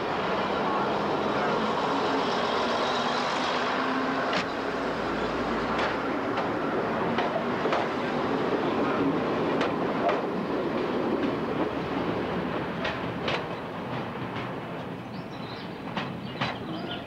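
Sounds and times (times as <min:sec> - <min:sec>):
diesel train running: 0:00.0 - 0:17.0
wheels clicking over rail joints: 0:12.6 - 0:14.9.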